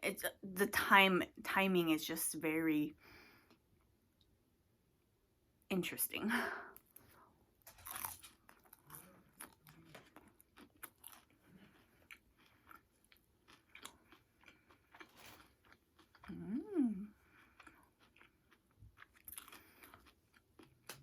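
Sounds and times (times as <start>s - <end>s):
person chewing food: 6.8s - 21.0s.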